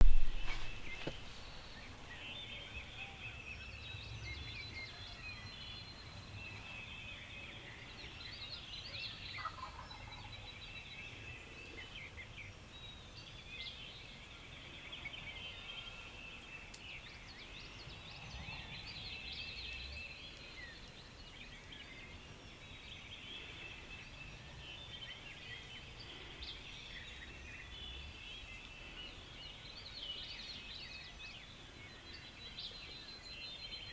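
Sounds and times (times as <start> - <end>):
songbirds chirping: 0.0 - 33.9
deep faint turkey drumming: 9.4 - 10.2
turkey gobbling: 9.4 - 10.3.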